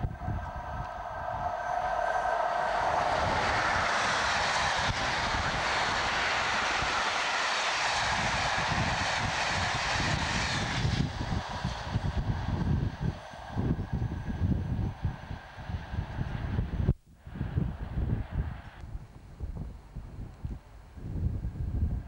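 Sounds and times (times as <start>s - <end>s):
rush of wheels on rail: 0.0s - 16.8s
electric locomotive whine: 0.0s - 22.0s.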